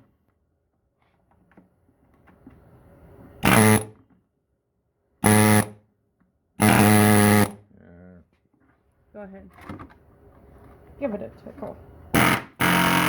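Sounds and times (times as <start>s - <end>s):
impact wrench buzzing rattle: 5.2s - 5.7s, 6.6s - 7.6s, 12.1s - 13.0s.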